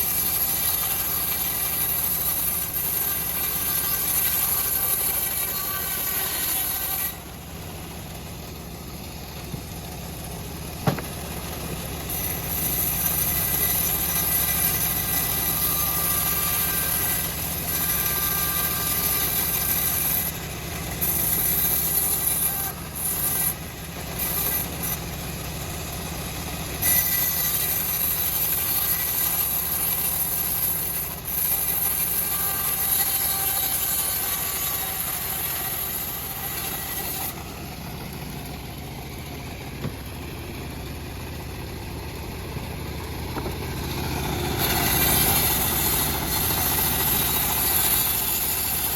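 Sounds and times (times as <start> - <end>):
saw blade hissing through log: 0.0 - 7.2, 12.0 - 23.6, 26.8 - 38.4, 43.8 - 48.9
sawmill engine running: 0.0 - 48.9.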